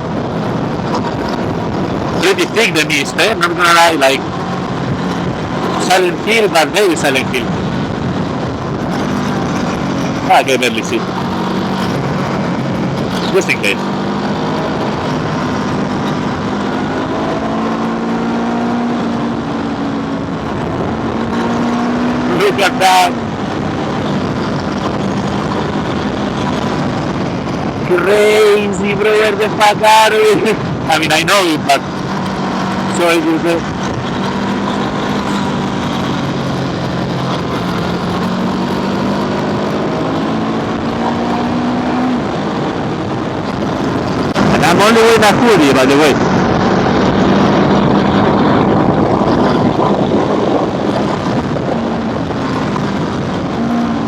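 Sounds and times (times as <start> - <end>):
wind on microphone: 0.0 - 6.5, 7.3 - 22.4, 31.7 - 44.9, 46.0 - 54.0
scooter engine running: 31.8 - 44.9, 46.4 - 54.0.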